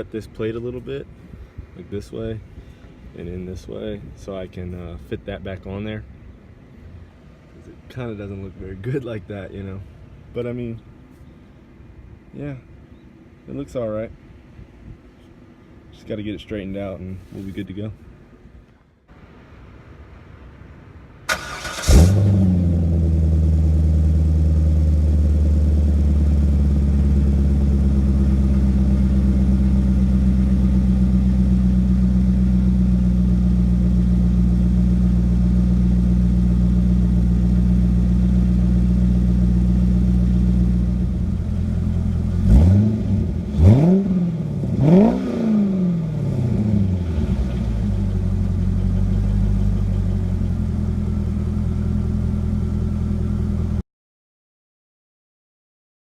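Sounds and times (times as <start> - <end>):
car engine starting and idling: 19.2 - 53.8
engine revving blips: 41.9 - 50.1.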